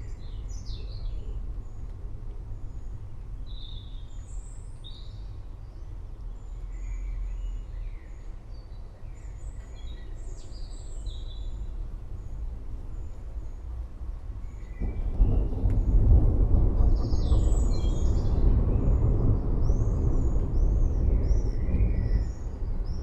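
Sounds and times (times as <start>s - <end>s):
steady low rumble: 11.1s - 23.0s.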